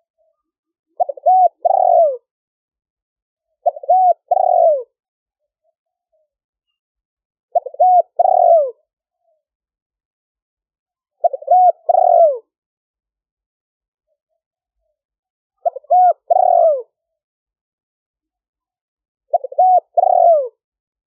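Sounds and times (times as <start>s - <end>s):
dove cooing: 1.0s - 2.3s, 3.6s - 5.0s, 7.5s - 8.8s, 11.2s - 12.5s, 15.6s - 17.0s, 19.3s - 20.6s.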